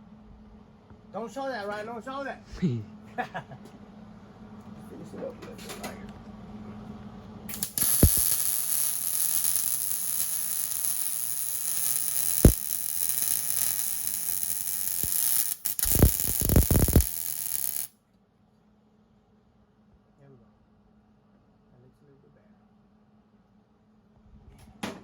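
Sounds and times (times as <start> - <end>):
welding arc sizzling: 7.5 - 17.9.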